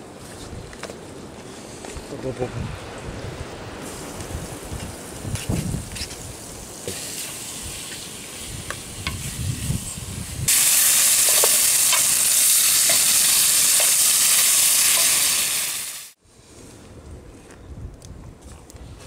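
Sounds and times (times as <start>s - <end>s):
food sizzling in a pan: 6.2s - 16.2s.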